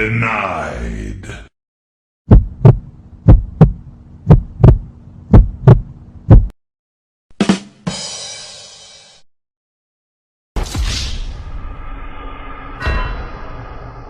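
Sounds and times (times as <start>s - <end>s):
heartbeat thumps: 2.3s - 6.6s
bright ringing crash: 10.7s - 14.0s.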